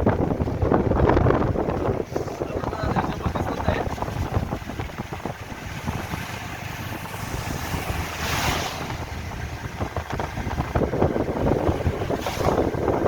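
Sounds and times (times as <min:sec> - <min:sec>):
low road rumble: 0:00.0 - 0:13.0
wind buffeting microphone: 0:00.0 - 0:13.0.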